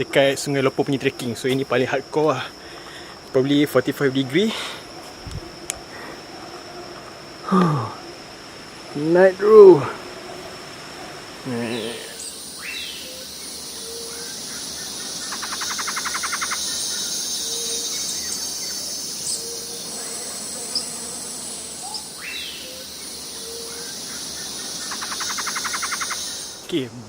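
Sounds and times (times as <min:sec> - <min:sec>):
insects buzzing: 0:00.0 - 0:27.0
bird calls: 0:10.0 - 0:26.9.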